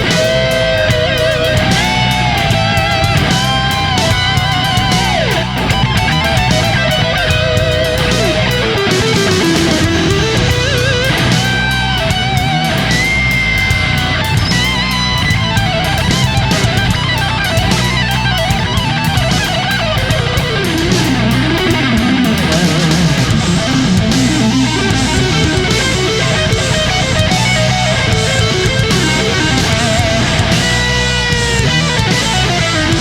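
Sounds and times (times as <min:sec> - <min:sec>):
electric guitar lead with bent notes: 0:00.0 - 0:33.0
rock music: 0:00.0 - 0:33.0.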